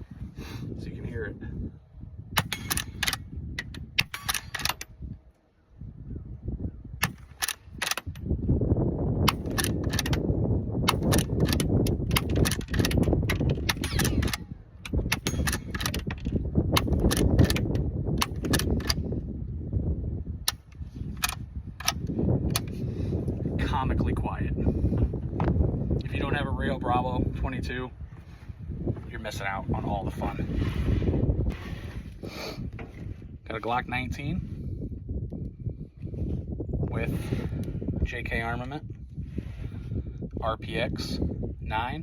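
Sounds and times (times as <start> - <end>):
suppressed rifle shots: 2.4 - 3.2, 4.0 - 4.8
rifle lever clicking: 2.4 - 4.9, 7.0 - 8.2, 9.3 - 10.3, 10.9 - 19.0, 20.5 - 22.8
bullets hitting steel: 15.1 - 15.8.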